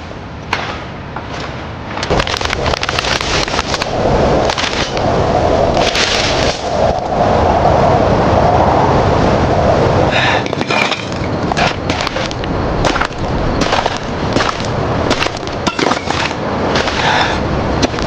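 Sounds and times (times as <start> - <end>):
sharp knocks and cracks: 0.5 - 5.0, 10.5 - 17.2, 17.8 - 18.0
construction site din: 10.1 - 18.0.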